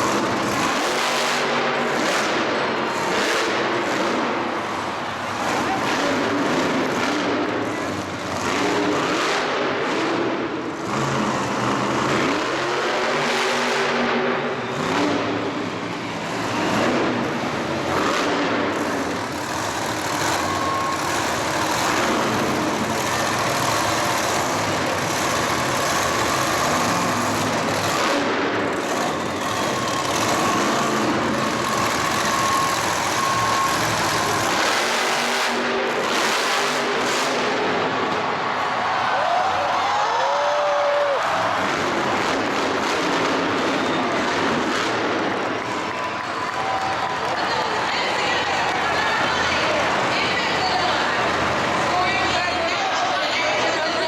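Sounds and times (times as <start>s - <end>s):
vehicle engine revving: 0.0s - 38.3s, 41.3s - 46.0s
dense loud noise: 0.0s - 54.0s.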